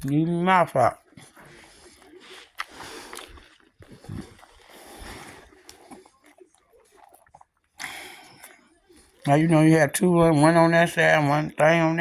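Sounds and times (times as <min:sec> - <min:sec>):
person chewing food: 0:00.9 - 0:09.3.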